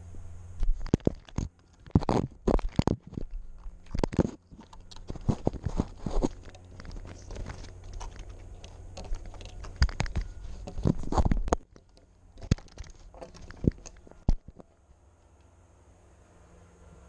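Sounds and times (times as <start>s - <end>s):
claws clicking and scraping: 0.6s - 15.5s.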